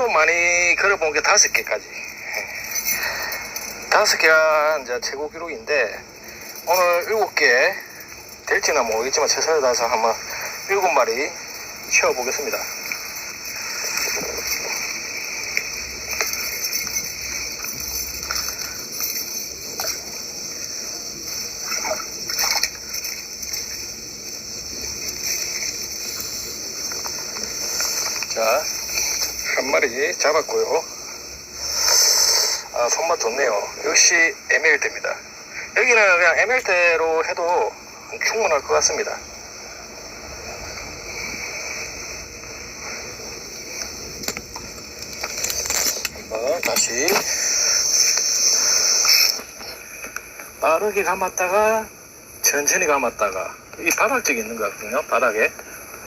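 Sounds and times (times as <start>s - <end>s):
rushing hiss: 6.2s - 36.2s, 37.2s - 51.5s.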